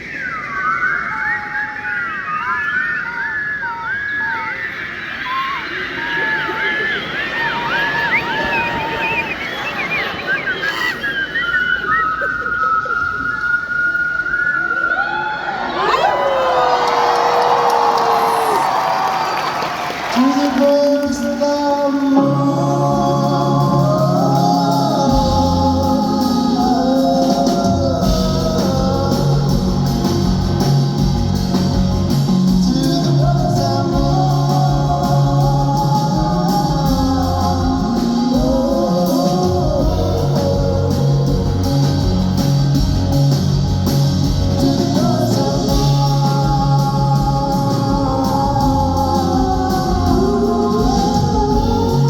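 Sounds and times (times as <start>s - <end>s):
held bass notes: 22.2s - 52.0s.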